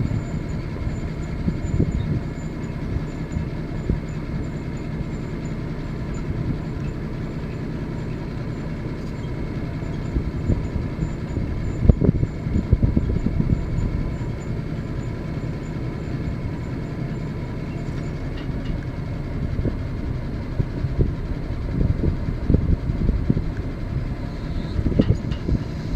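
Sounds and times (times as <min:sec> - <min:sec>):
truck engine running: 0:00.0 - 0:25.9
knocks and clunks: 0:24.7 - 0:25.6.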